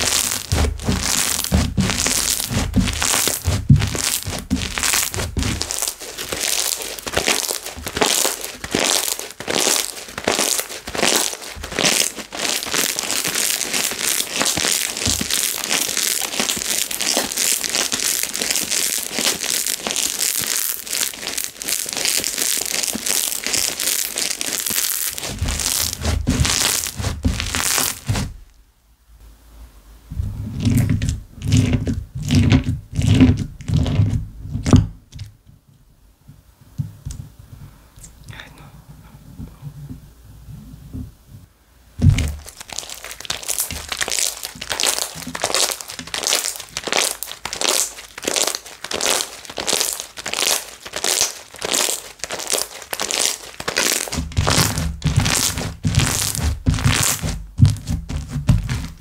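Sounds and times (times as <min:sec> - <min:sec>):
slime bubbles popping: 0:00.0 - 0:28.2, 0:42.1 - 0:59.0.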